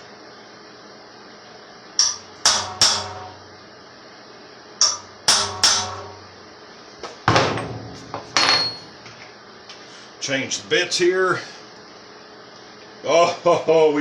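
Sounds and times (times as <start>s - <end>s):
steady low hum: 0.0s - 14.0s
hammer blows on metal: 2.0s - 3.5s, 4.8s - 6.3s.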